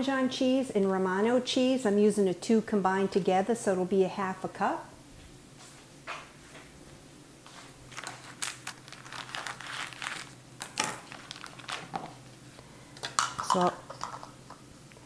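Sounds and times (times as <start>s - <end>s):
plastic packaging crinkling: 7.9s - 12.2s.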